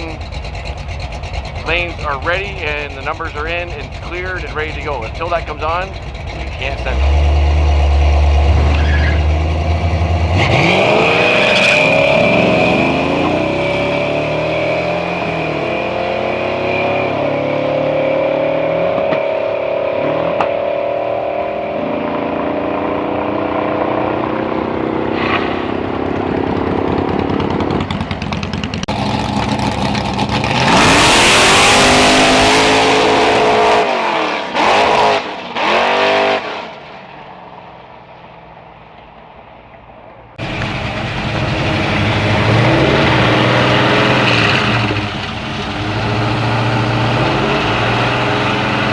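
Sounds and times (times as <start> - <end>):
drag car engine accelerating: 0.0 - 37.3, 40.4 - 48.9
engine revving in bursts: 6.5 - 22.0, 28.8 - 36.6, 41.1 - 45.1.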